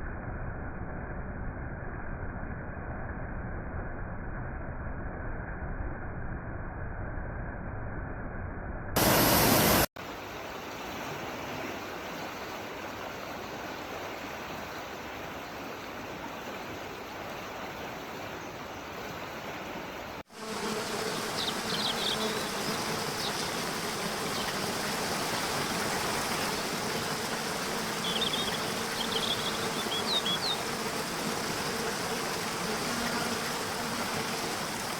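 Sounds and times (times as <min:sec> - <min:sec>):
steady rushing hiss: 0:09.0 - 0:14.6, 0:18.9 - 0:34.9.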